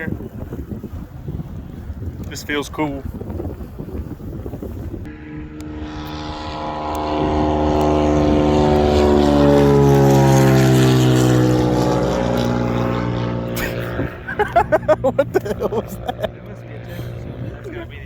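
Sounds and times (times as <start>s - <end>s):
propeller airplane flying past: 4.5s - 18.0s.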